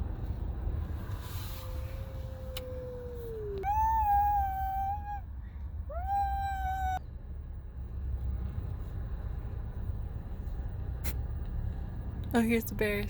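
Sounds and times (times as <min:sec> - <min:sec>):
car driving from inside: 0:00.0 - 0:13.0
long howl: 0:01.6 - 0:05.2, 0:05.9 - 0:07.0.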